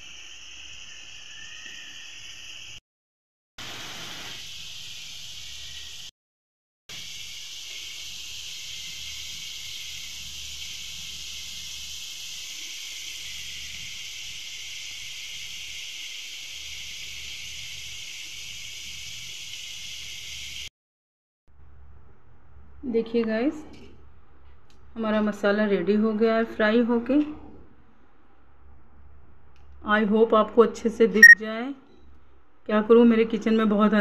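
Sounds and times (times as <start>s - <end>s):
cheese sizzling in ghee: 3.6s - 6.1s, 6.9s - 20.7s.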